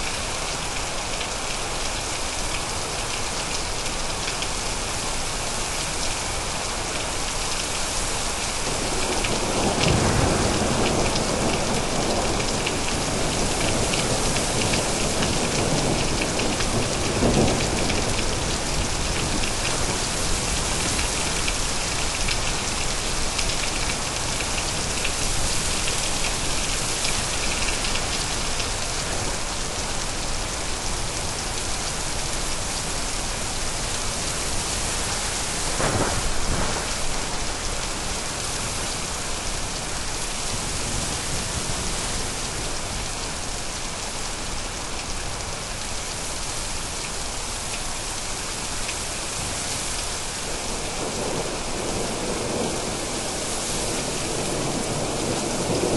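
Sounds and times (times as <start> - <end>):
heavy rain falling: 0.0 - 55.9
thunder: 8.7 - 18.2, 35.7 - 37.5, 50.6 - 55.9.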